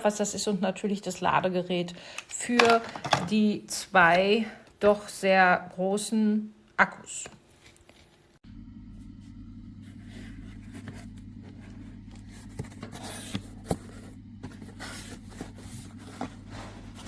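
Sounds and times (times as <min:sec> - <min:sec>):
items clicking and scraping: 0:02.1 - 0:03.5
steady low hum: 0:08.4 - 0:17.0.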